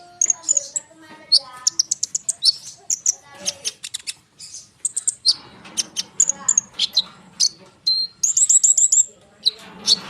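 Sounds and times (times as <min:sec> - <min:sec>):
songbird chirping and trilling: 0:00.0 - 0:10.0.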